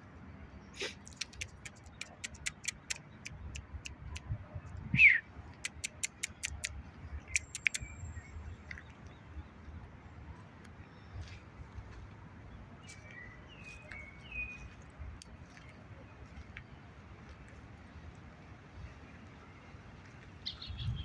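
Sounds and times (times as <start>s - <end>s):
sharp high clicks: 1.1s - 4.2s, 5.5s - 7.9s.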